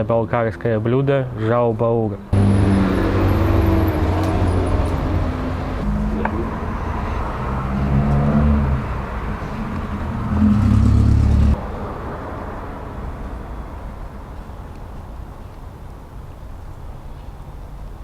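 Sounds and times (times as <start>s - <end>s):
motor engine humming: 2.4s - 11.6s.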